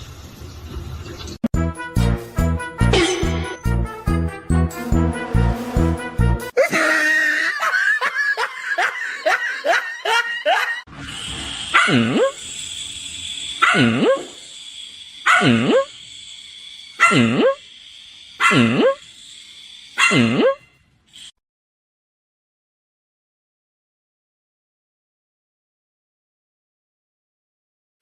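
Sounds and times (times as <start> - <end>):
dog swooping calls: 11.7 - 12.4
dog yipping: 11.7 - 12.4, 13.6 - 14.3, 15.2 - 15.9, 17.0 - 17.6, 18.4 - 19.0, 20.0 - 20.6.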